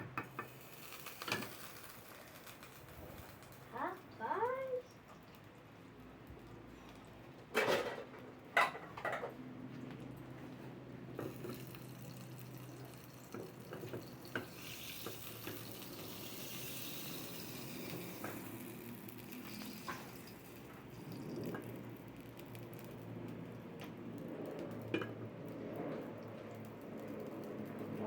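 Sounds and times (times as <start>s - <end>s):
tap water running into sink: 11.2s - 18.8s.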